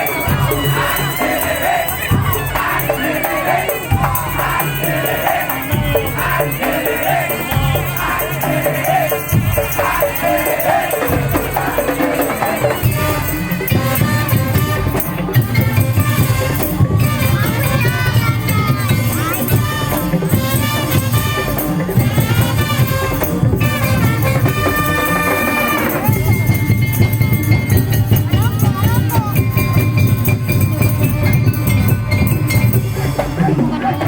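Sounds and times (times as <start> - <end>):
crowd noise: 0.0 - 34.0
shaker-like rattling percussion: 0.0 - 34.0.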